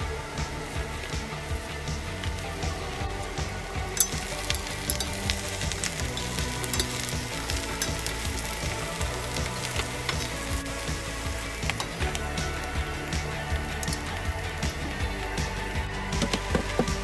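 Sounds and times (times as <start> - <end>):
crackles and pops: 0.0 - 17.0
vegetables sizzling in a pan: 0.1 - 17.0.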